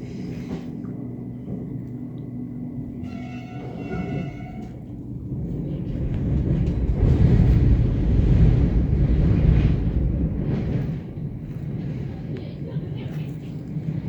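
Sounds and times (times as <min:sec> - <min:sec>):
moving train rumble: 0:00.0 - 0:14.0
wind on microphone: 0:05.2 - 0:12.4.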